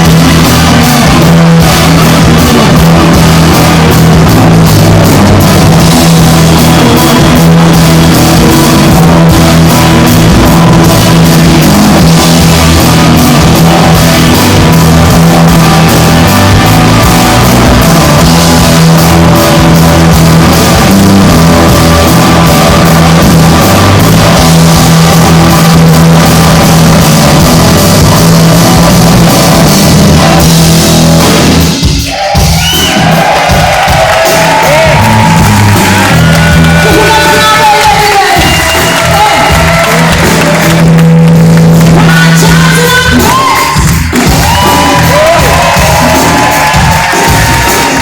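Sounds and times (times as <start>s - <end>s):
electric guitar: 0.0s - 32.0s
drum kit: 0.0s - 48.0s
live rock band playing: 0.0s - 48.0s.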